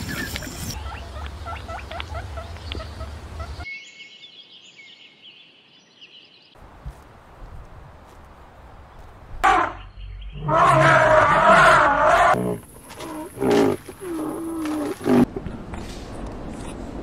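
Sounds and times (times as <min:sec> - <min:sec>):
birds chirping: 0:00.0 - 0:06.6, 0:08.7 - 0:15.3.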